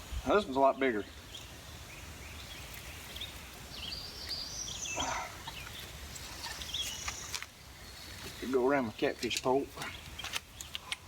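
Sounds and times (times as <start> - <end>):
birds chirping: 0.0 - 11.0
outdoor background noise: 0.0 - 11.0.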